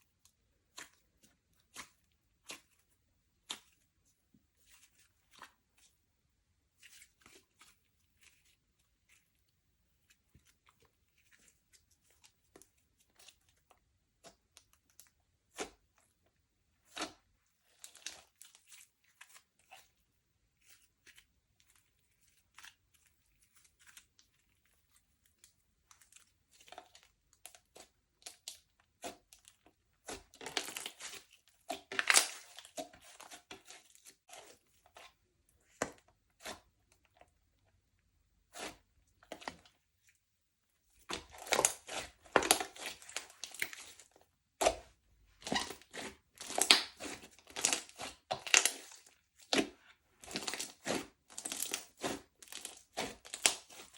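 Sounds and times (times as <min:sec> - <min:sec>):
slime crackling: 0:41.0 - 0:53.9.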